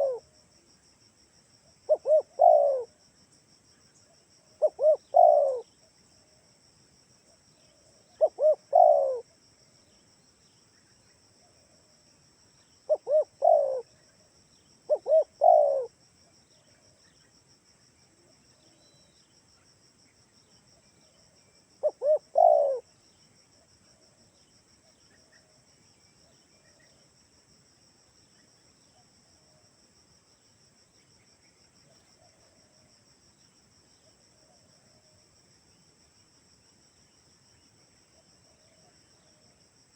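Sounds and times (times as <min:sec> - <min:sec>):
dove cooing: 0:00.0 - 0:00.3, 0:01.9 - 0:02.9, 0:04.6 - 0:05.7, 0:08.2 - 0:09.2, 0:12.9 - 0:13.9, 0:14.9 - 0:16.0, 0:21.8 - 0:22.9
high insect drone: 0:00.0 - 0:39.9.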